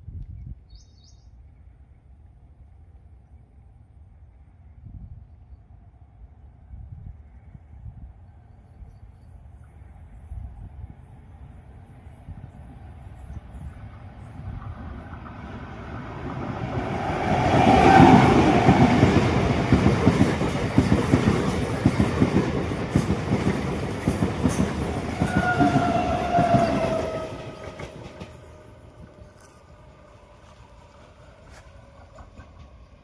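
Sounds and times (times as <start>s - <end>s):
train wheels clattering on rails: 14.4s - 29.8s, 31.4s - 33.0s.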